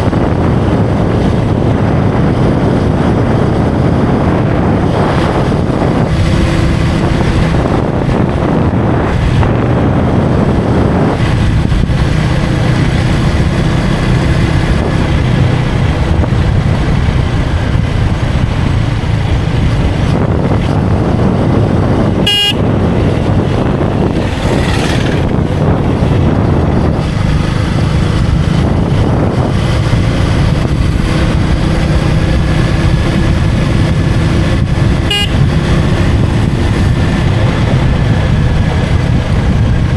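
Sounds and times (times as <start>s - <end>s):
motorcycle engine cruising: 0.0s - 39.9s
wind rushing over microphone: 0.0s - 39.9s
vehicle horn toot: 22.2s - 22.8s, 35.0s - 35.6s.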